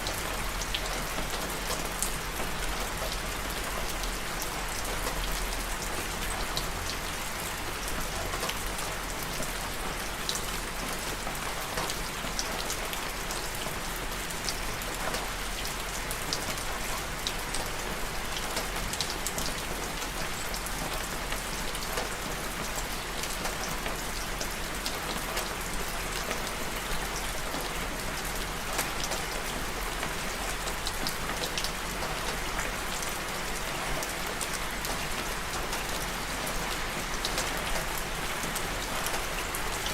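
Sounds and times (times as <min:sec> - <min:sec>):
raindrops ticking on a surface: 0:00.0 - 0:39.9.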